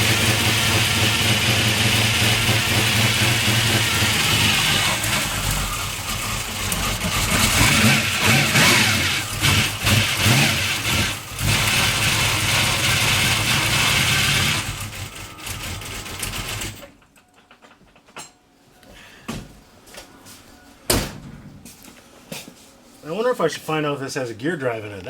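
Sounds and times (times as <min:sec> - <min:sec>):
car engine running loud: 0:00.0 - 0:16.6.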